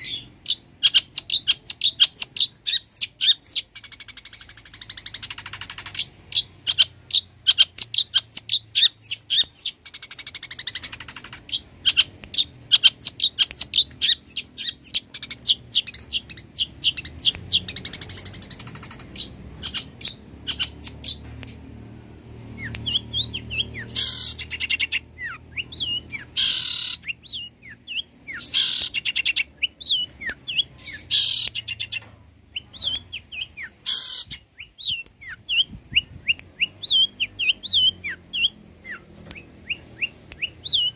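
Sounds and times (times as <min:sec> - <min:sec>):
bird chirping and whistling: 0:00.0 - 0:21.6, 0:22.6 - 0:40.9
harsh raspy bird calls: 0:32.7 - 0:34.4.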